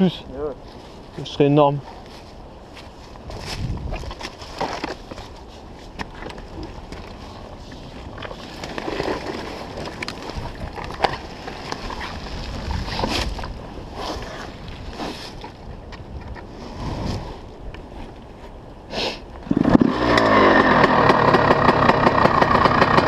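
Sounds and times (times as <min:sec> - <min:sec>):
wind rumbling on microphone: 0:00.0 - 0:20.0
rustling: 0:00.6 - 0:18.6.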